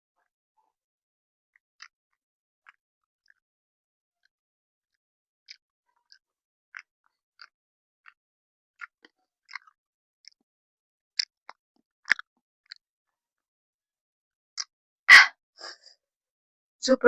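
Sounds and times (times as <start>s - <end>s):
person chewing noodles: 8.8s - 10.4s, 11.2s - 12.8s
breathy mouth sound: 15.1s - 15.8s.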